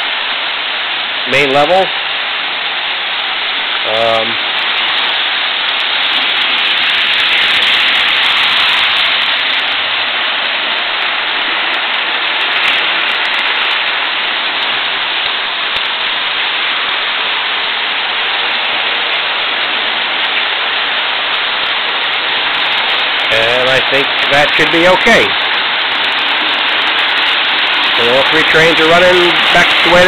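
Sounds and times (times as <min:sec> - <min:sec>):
model trains rolling hiss: 0:27.9 - 0:30.0.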